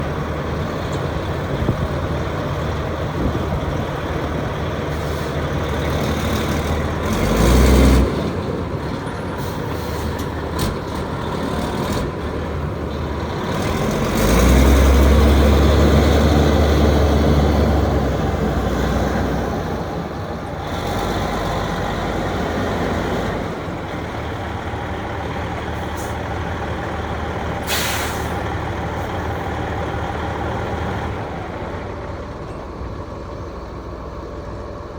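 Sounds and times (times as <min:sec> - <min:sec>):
diesel truck engine running: 0:00.0 - 0:34.9
air hiss burst: 0:27.6 - 0:28.4.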